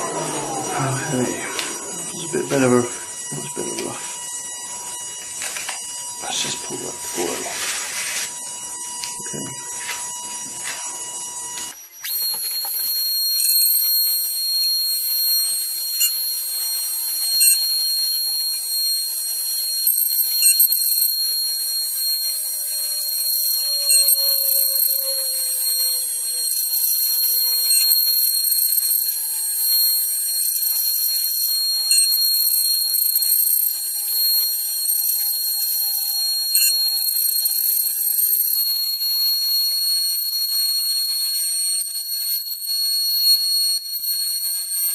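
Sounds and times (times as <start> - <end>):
low tones sliding down: 0.0 - 3.3
router spindle whining: 0.0 - 40.7.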